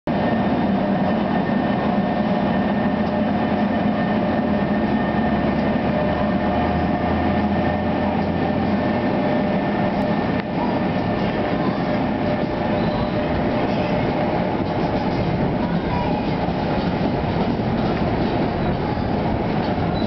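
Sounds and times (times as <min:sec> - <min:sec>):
electric locomotive hum: 0:00.1 - 0:20.0
wheels rumbling on rails: 0:00.1 - 0:20.0.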